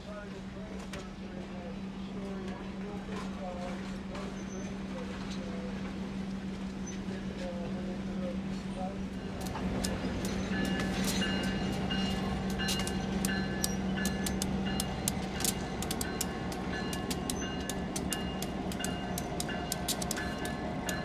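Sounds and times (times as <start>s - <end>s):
locomotive engine hum: 0.2s - 21.0s
train wheels clicking and squeaking: 9.2s - 21.0s.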